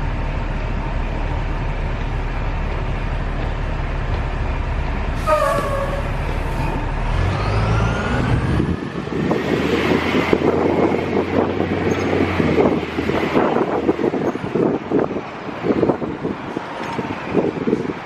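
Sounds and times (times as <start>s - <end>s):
bus engine rumbling: 0.0s - 18.0s
air brakes hissing: 5.2s - 7.0s.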